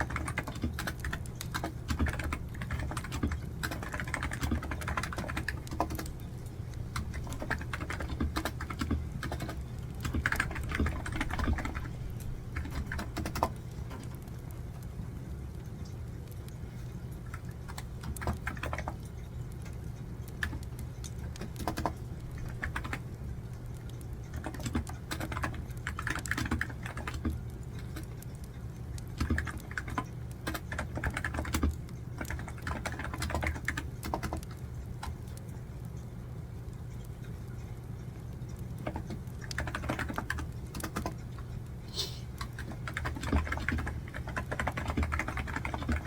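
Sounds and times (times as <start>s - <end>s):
typing on a computer keyboard: 0.0s - 36.1s, 36.7s - 41.7s, 42.4s - 46.0s
steady low hum: 0.0s - 46.0s.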